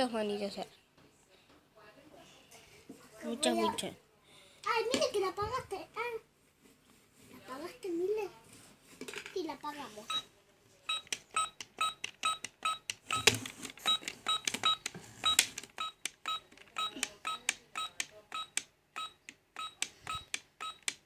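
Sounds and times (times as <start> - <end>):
toy electronic beeps: 10.9 - 13.3, 13.9 - 21.0.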